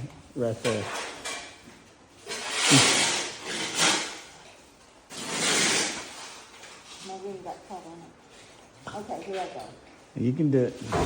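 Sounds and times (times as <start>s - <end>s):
rubbing and scraping on wood: 2.2s - 4.3s, 5.1s - 7.3s.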